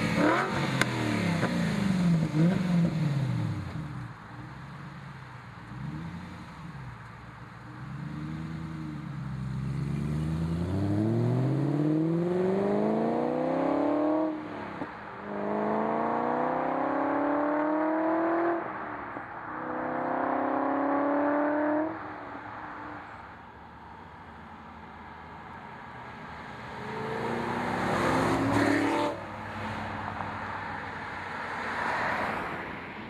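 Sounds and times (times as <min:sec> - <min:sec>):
car engine accelerating hard: 0:00.0 - 0:04.0, 0:07.8 - 0:18.8, 0:19.6 - 0:22.1.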